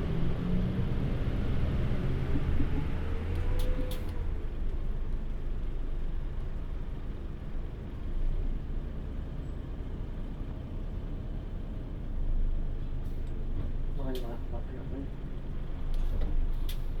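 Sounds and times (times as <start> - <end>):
bus diesel engine rumble: 0.0 - 17.0.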